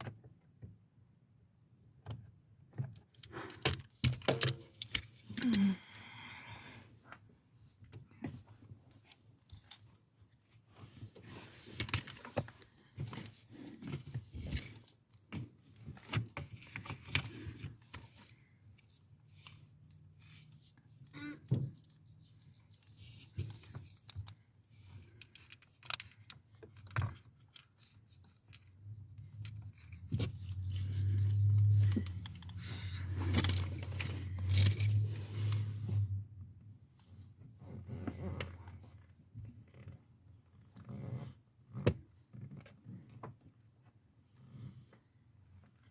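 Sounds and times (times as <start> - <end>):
small tools clicking and rattling: 3.2 - 6.1, 23.1 - 35.0.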